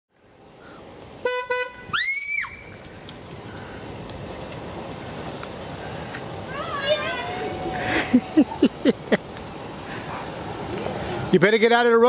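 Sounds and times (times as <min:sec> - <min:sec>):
car horn tooting: 0:01.2 - 0:01.9.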